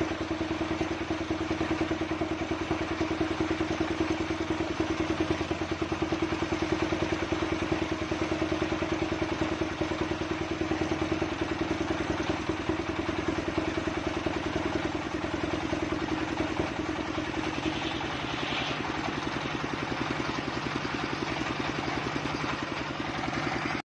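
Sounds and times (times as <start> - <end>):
circular saw engine running: 10.5 - 23.8.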